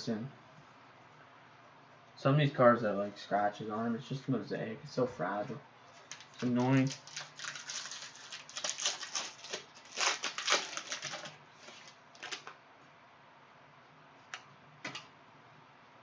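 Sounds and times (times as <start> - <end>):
trading cards clicking and rustling: 6.0 - 12.5.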